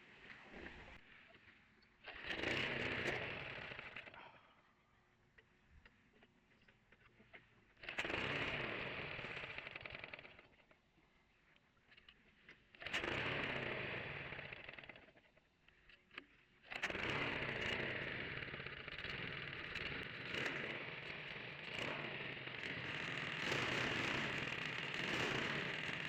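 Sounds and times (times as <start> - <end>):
small gasoline engine running roughly: 2.0 - 4.4, 7.1 - 10.8, 12.0 - 26.0.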